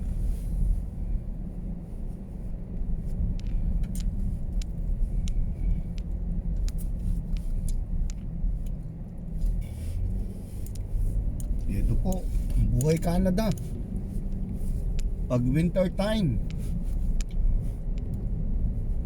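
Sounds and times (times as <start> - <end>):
car road rumble from inside: 0.0 - 19.0
faint high ticks: 10.7 - 13.7.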